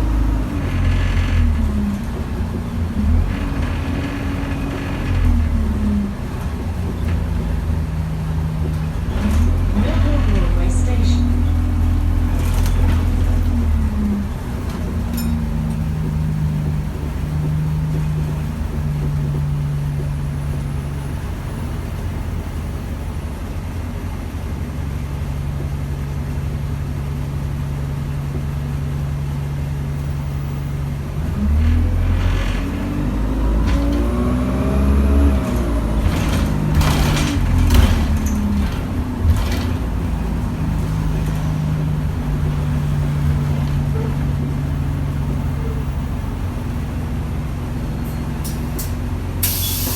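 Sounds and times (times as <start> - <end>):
sharp knocks and rattles: 0.0 - 22.5, 32.0 - 46.7
bus diesel engine idling and revving: 0.0 - 49.9.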